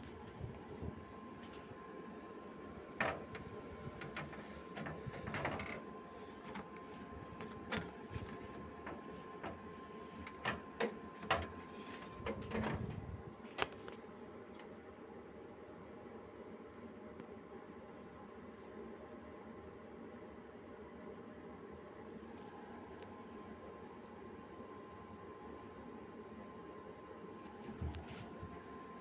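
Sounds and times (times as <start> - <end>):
steady background hum: 0.0 - 29.0
sharp clicks and knocks: 3.0 - 13.0.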